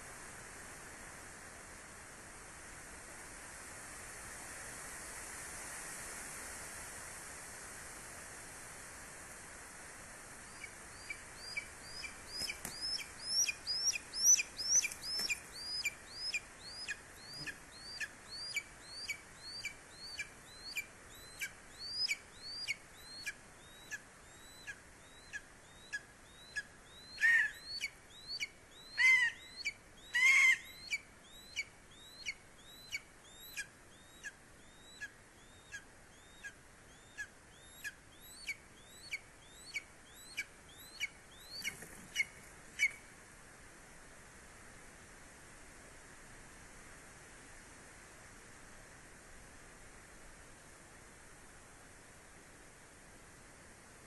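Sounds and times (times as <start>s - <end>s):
eagle calling: 10.4s - 43.0s.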